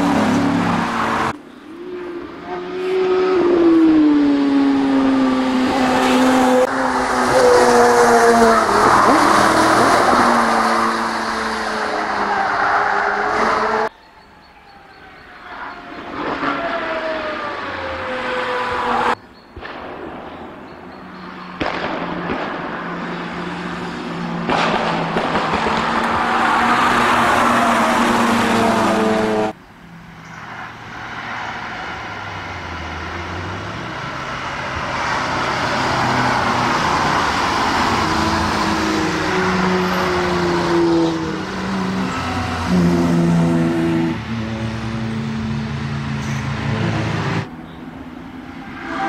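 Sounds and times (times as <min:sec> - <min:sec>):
race cars passing at speed: 0:00.0 - 0:13.9, 0:14.6 - 0:19.8, 0:20.7 - 0:49.0
engines revving through gear changes: 0:02.2 - 0:13.9, 0:32.7 - 0:47.5.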